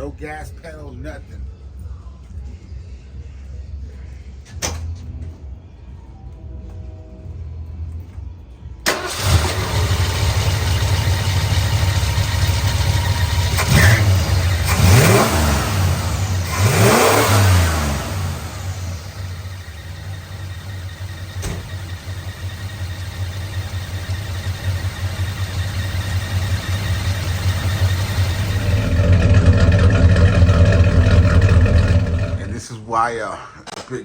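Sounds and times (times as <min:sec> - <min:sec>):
engine idling: 0:06.7 - 0:32.6
engine starting and revving: 0:08.8 - 0:20.6, 0:23.1 - 0:32.6.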